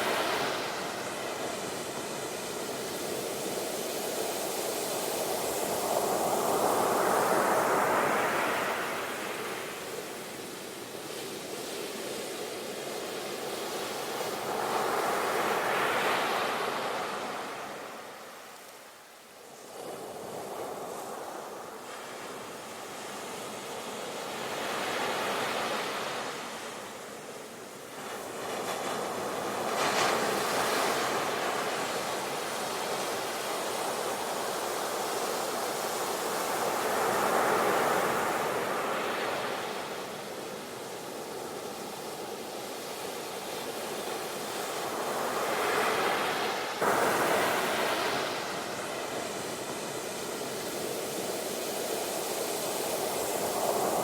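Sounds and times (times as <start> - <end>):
sea waves breaking on shore: 27.9 - 54.0.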